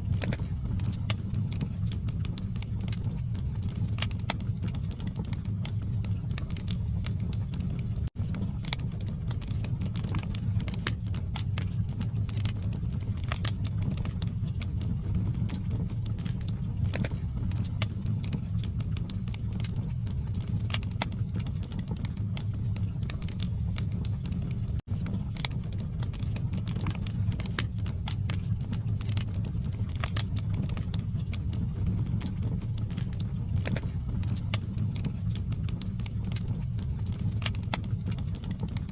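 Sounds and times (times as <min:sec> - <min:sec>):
fire crackles and pops: 0:00.0 - 0:38.9
low rumble of flame: 0:00.0 - 0:38.9.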